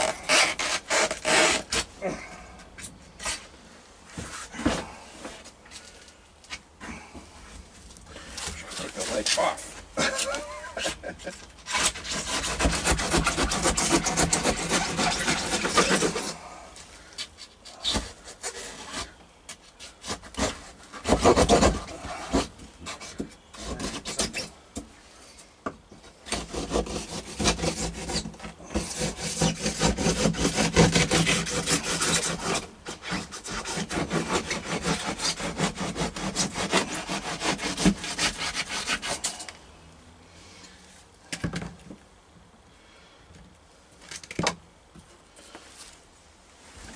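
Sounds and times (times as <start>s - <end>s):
saw rasping through wood: 0.0s - 1.9s, 8.5s - 11.0s, 11.6s - 16.4s, 20.0s - 24.5s, 26.3s - 39.4s.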